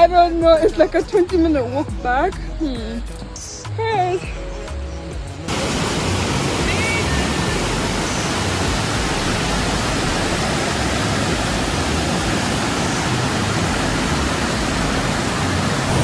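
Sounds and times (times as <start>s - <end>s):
heavy rain falling in forest: 5.5s - 16.0s.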